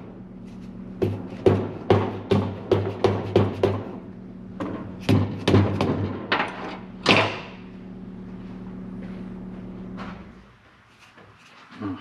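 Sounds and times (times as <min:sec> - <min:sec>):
steady low hum: 0:00.0 - 0:12.0
hammer knocking on engine cylinder: 0:01.0 - 0:04.0, 0:05.1 - 0:06.2.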